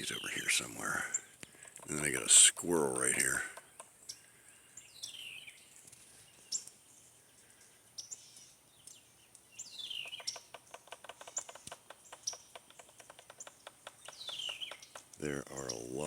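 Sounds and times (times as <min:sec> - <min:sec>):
wild birds chirping: 0:00.0 - 0:16.0
woodpecker pecking at wood: 0:01.4 - 0:02.3, 0:03.2 - 0:04.0, 0:10.0 - 0:15.2.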